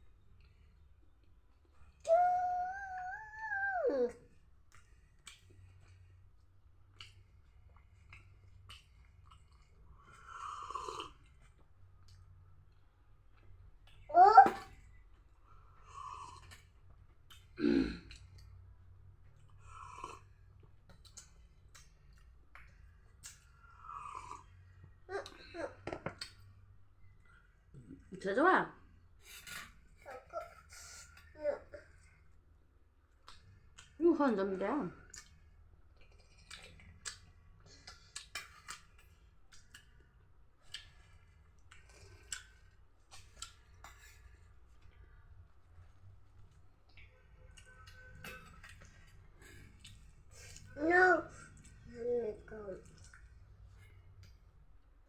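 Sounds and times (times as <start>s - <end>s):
chewing and mouth clicks: 4.7s - 14.1s, 19.2s - 23.6s, 33.1s - 34.0s, 35.1s - 45.0s, 45.8s - 50.8s, 52.8s - 54.4s.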